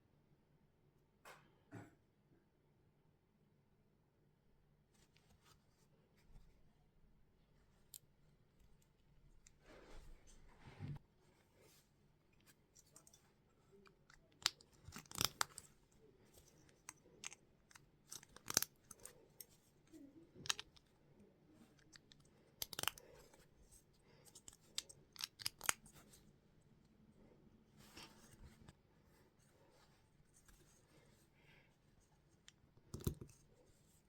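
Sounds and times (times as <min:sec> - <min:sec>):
plastic bricks clicking together: 0:14.3 - 0:15.7, 0:16.8 - 0:19.1, 0:20.4 - 0:20.8, 0:21.8 - 0:23.0, 0:24.3 - 0:25.9.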